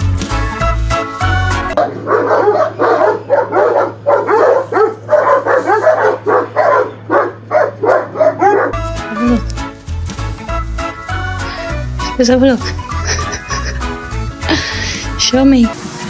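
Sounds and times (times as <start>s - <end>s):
music: 0.0s - 1.8s, 8.8s - 16.0s
dog yipping and whining: 1.8s - 9.4s.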